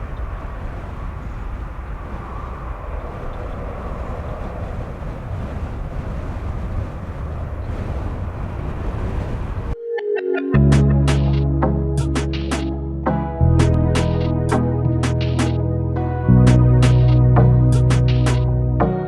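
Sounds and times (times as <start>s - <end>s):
jet engine rumble: 0.0s - 9.8s.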